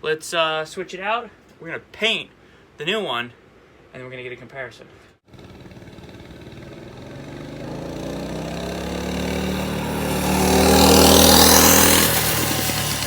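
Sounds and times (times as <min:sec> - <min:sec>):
small engine revving: 0:05.3 - 0:13.0.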